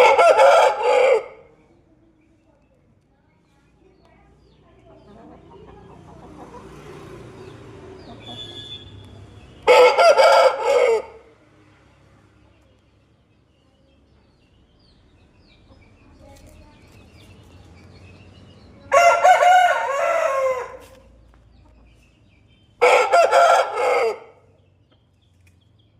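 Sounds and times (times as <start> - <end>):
rooster crowing: 0.0 - 1.5, 9.7 - 11.3, 18.9 - 20.9, 22.8 - 24.4.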